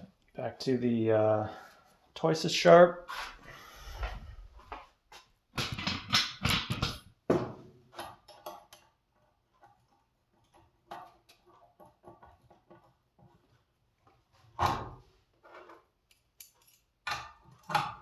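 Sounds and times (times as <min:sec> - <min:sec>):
metallic clicks and knocks: 0:07.9 - 0:13.6, 0:15.6 - 0:18.0.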